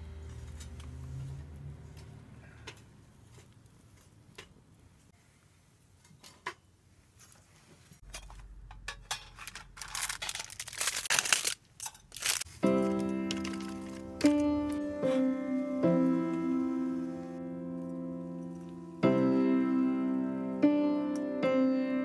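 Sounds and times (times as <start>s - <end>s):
loud rustling and crackling: 9.4s - 15.1s.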